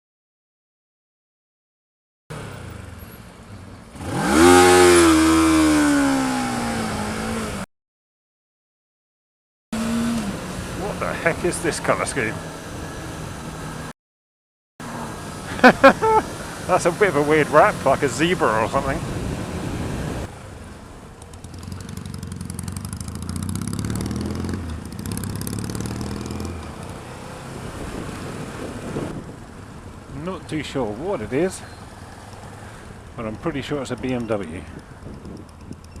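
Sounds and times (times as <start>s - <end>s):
motorcycle engine revving: 2.3s - 7.7s, 9.8s - 13.9s, 14.8s - 20.4s, 21.2s - 30.2s.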